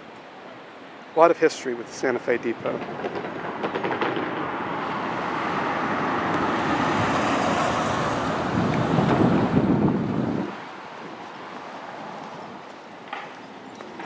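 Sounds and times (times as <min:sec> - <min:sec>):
vehicle passing by: 0:02.9 - 0:10.6.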